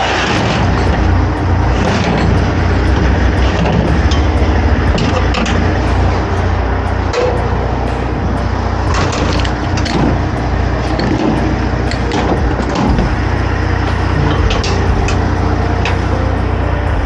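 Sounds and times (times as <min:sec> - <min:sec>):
diesel truck engine drone: 0:00.0 - 0:17.0
road and cab rumble: 0:00.0 - 0:17.0.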